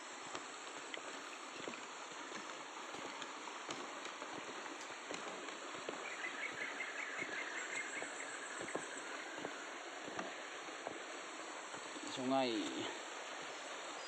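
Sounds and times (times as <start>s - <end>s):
forest stream rushing: 0.0s - 14.0s.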